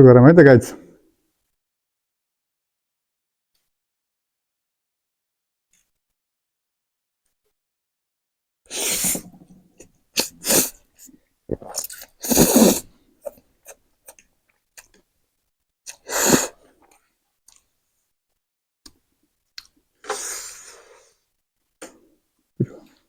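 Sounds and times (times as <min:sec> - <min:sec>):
people slurping noodles: 0:08.7 - 0:09.6, 0:10.2 - 0:10.7, 0:11.5 - 0:13.4
chewing and mouth clicks: 0:11.5 - 0:12.2.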